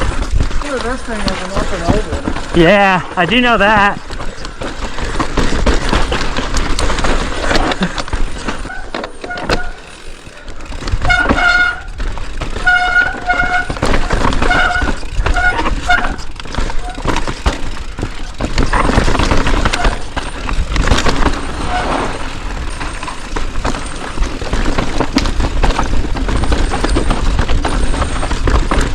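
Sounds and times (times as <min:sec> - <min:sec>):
bike rattling on rocky trail: 0:00.0 - 0:28.9
disc brakes squealing: 0:07.5 - 0:25.0, 0:25.8 - 0:28.9.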